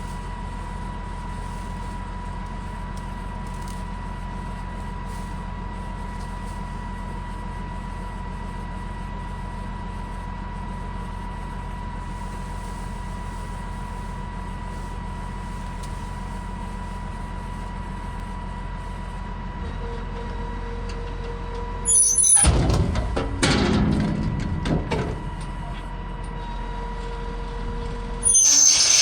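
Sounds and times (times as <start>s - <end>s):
loud clatter of knocks: 22.4s - 25.4s
brief hiss: 28.2s - 29.0s.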